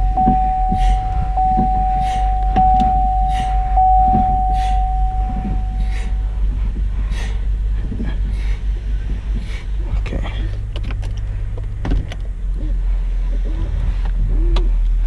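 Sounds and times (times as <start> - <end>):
car electronic warning tone: 0.0 - 6.5
low rumble: 0.0 - 15.0.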